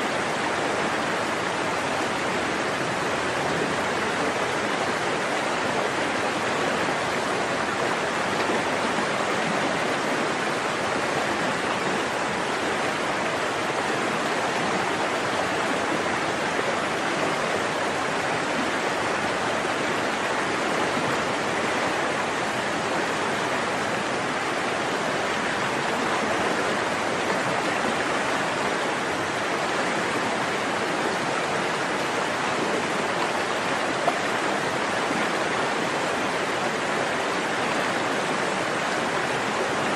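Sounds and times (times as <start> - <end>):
stream water flowing and splashing: 0.0 - 39.9.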